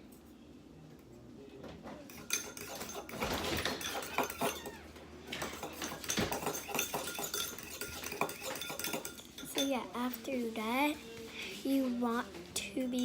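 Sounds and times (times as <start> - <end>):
spoon scraping a bowl: 2.1 - 9.9.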